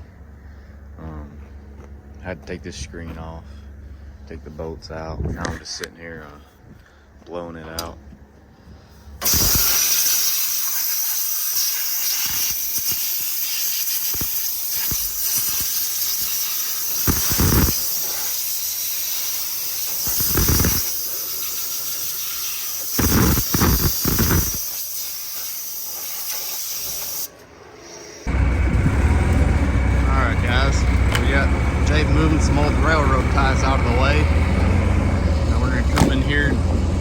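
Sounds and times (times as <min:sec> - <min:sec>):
compressed air blow gun hissing: 0:09.2 - 0:28.3.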